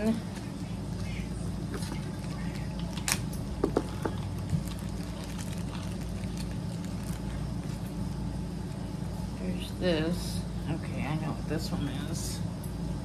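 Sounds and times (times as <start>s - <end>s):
low background hum: 0.0s - 13.0s
packaging handling noises: 1.7s - 8.3s.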